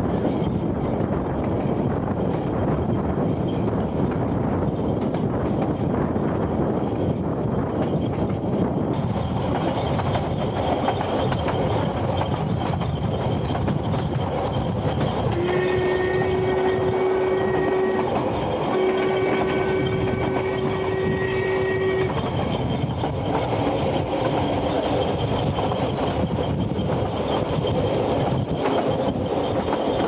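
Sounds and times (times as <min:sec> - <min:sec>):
train wheels rumbling on rail: 0:00.0 - 0:30.0
locomotive horn blasts: 0:15.3 - 0:22.2.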